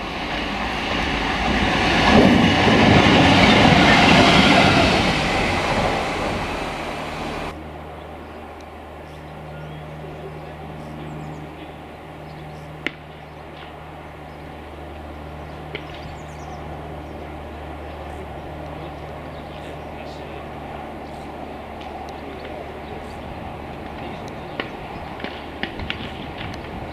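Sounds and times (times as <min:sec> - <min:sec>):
train passing: 0:00.0 - 0:07.6
steady low drone: 0:00.0 - 0:07.9.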